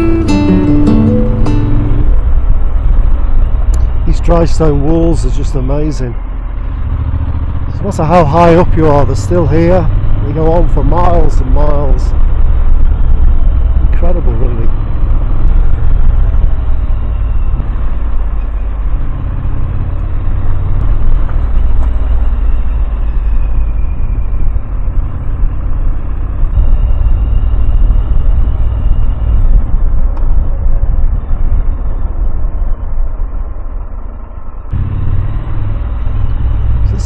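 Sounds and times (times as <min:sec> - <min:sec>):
motorcycle engine rumble: 0:00.0 - 0:37.0
wind noise: 0:09.9 - 0:37.0.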